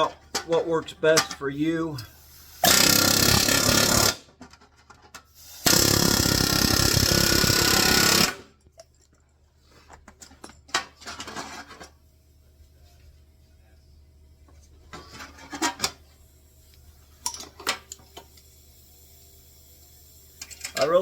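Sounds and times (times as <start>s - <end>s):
pneumatic rivet gun hammering: 2.1s - 4.6s, 5.4s - 8.5s.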